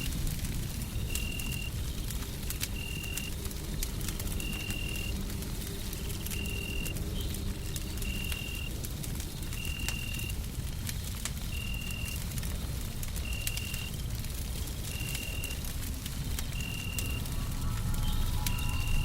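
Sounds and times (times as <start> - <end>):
wood fire crackling: 0.0 - 19.0
low rushing white noise: 15.9 - 19.0.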